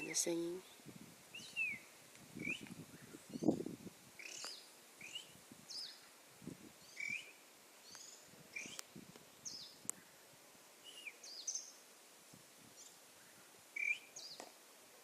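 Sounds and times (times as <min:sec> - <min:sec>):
bird thin chirps: 0:04.2 - 0:06.0, 0:06.9 - 0:08.8, 0:13.8 - 0:14.4.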